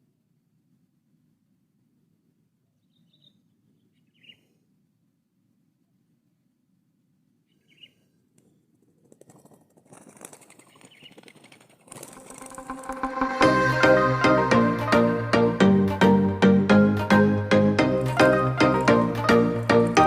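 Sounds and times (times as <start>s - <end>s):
faint bird chirps: 2.7s - 4.8s, 7.4s - 8.6s
rustling crackling noise: 8.4s - 13.5s, 18.0s - 20.0s.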